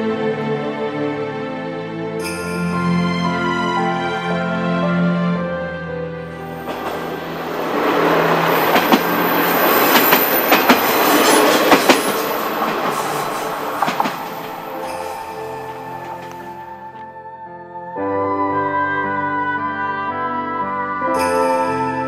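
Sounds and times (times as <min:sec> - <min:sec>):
diesel railcars rumbling past: 0:06.2 - 0:16.8
wheel clacks over rail joints: 0:06.7 - 0:15.1.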